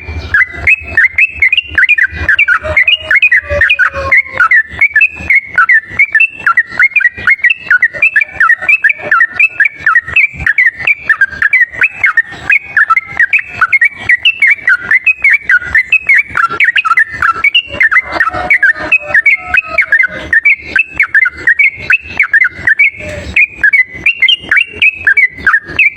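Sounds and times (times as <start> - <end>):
bird singing rapid warbling song: 0.0 - 25.9.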